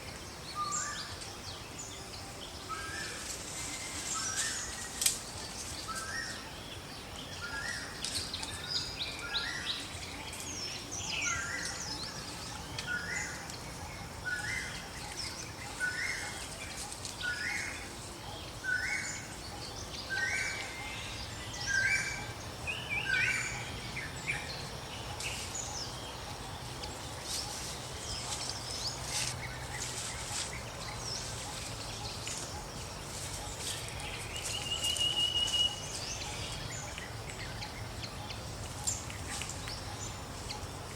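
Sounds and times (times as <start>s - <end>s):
birds singing: 0.0s - 40.9s
steady background hiss: 0.0s - 40.9s
higher bird chirps: 27.2s - 40.7s.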